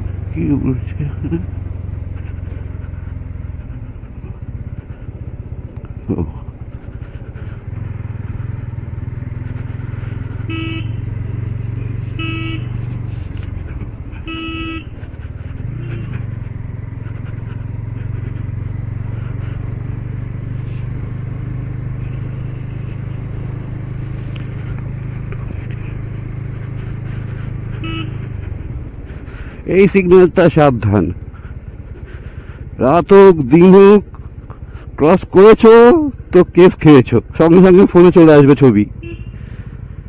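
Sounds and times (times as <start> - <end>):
motorcycle engine running: 0.0 - 40.0
horn beeps: 10.4 - 11.1, 12.1 - 12.8, 14.2 - 15.0, 27.8 - 28.2.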